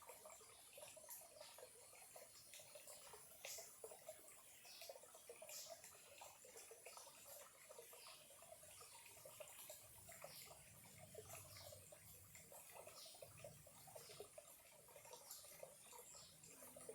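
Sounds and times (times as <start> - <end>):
stream trickling and bubbling: 0.0 - 16.9.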